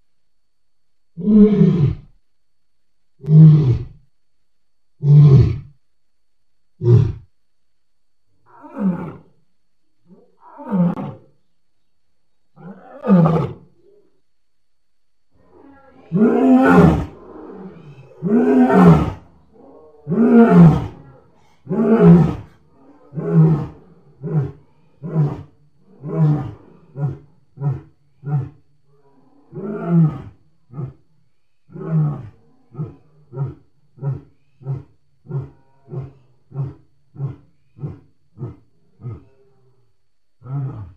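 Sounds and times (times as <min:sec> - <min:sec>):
lion roaring: 0:15.4 - 0:31.0, 0:31.7 - 0:39.8, 0:40.4 - 0:40.9.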